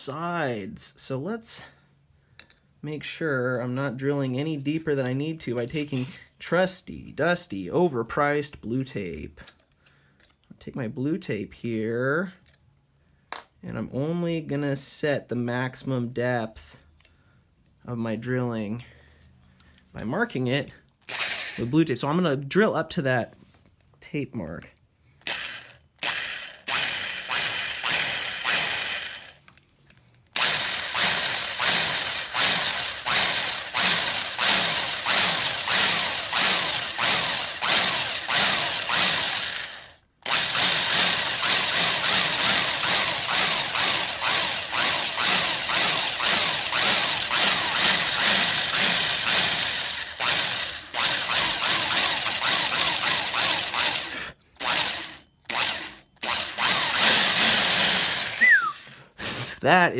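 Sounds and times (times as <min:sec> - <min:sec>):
drill boring into wood: 0:21.1 - 0:21.7, 0:25.2 - 0:29.4, 0:30.3 - 0:58.8.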